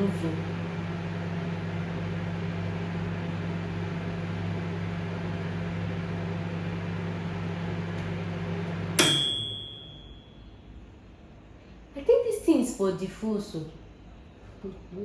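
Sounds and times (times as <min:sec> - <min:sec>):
microwave oven humming: 0:00.0 - 0:11.5
microwave click: 0:07.8 - 0:10.2.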